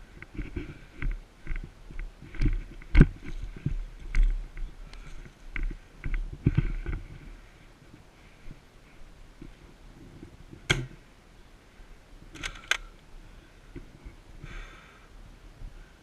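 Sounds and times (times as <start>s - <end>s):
rustling: 0.0s - 10.7s.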